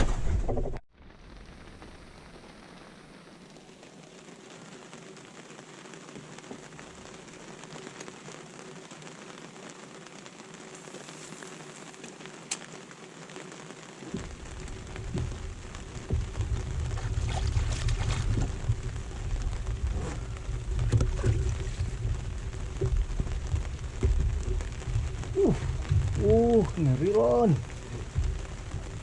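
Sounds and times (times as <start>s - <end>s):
steady rain falling: 0.9s - 29.0s
low rumble: 14.2s - 29.0s.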